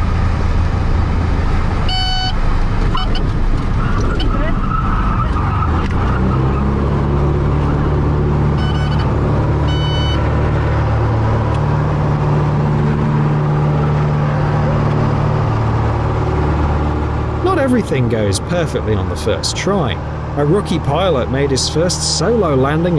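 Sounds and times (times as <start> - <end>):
light aircraft engine droning: 8.7 - 22.9
short electronic beeps: 9.7 - 10.2.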